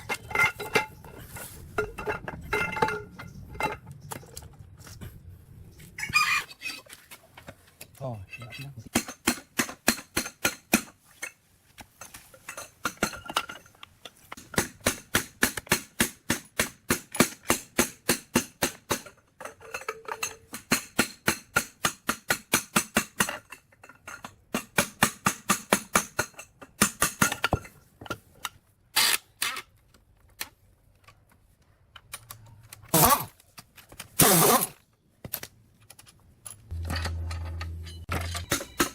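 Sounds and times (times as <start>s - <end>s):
small hammer striking metal: 36.7s - 38.9s.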